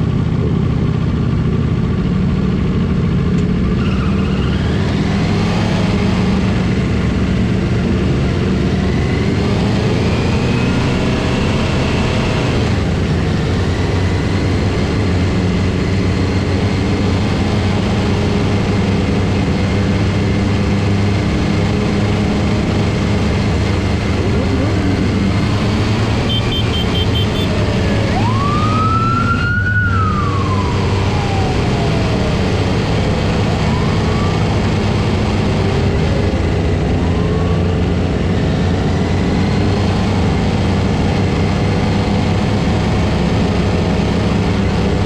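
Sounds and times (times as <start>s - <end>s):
motorcycle engines running: 0.0s - 45.0s
police siren: 24.0s - 38.4s
high beeps: 26.2s - 27.9s.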